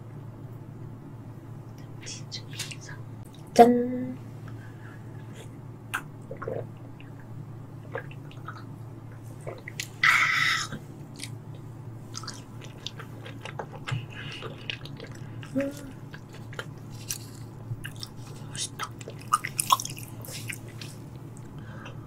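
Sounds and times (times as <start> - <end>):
soft chewing: 6.2 - 22.0
person humming mm: 15.4 - 16.0.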